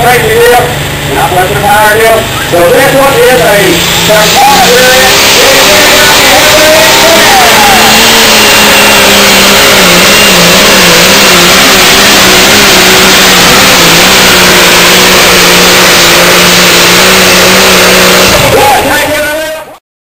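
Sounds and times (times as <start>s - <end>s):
diesel engine running under load: 0.0s - 19.6s.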